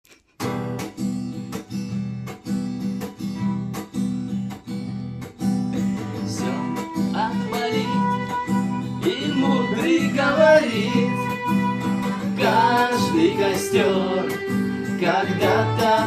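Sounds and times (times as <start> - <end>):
acoustic guitar strumming: 0.3 - 16.0
violin sliding notes: 5.8 - 16.0.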